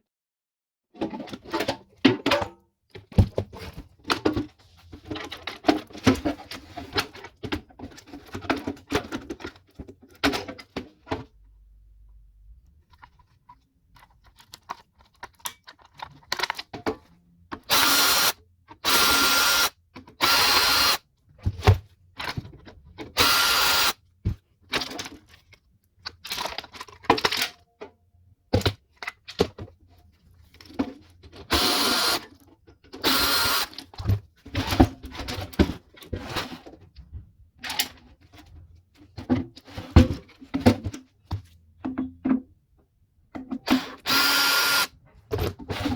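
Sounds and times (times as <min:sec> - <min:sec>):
metal parts clicking and knocking: 0:14.0 - 0:21.0
power drill running: 0:17.7 - 0:21.0, 0:23.2 - 0:24.0, 0:31.5 - 0:32.2, 0:33.0 - 0:33.7, 0:43.7 - 0:44.9.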